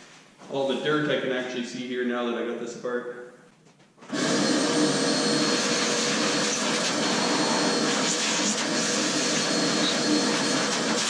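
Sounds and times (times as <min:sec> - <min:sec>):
vacuum cleaner running: 0:04.0 - 0:11.0.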